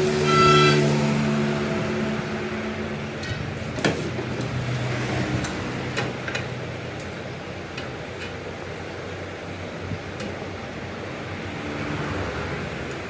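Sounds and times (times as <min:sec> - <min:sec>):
workshop machine humming: 0:00.0 - 0:08.2.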